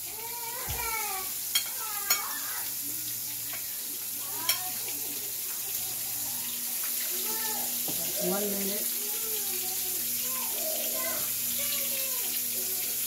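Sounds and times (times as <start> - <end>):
prawns sizzling in a skillet: 0.0 - 13.0.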